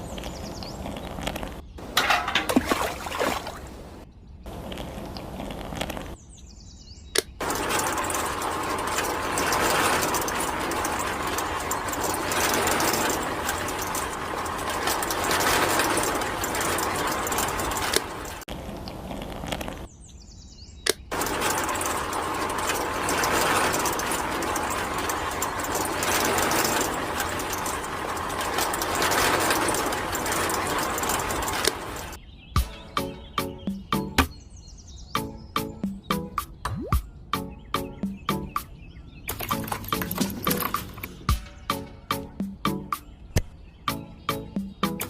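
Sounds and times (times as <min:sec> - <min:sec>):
sharp click: 0:07.1 - 0:07.4, 0:20.8 - 0:21.1.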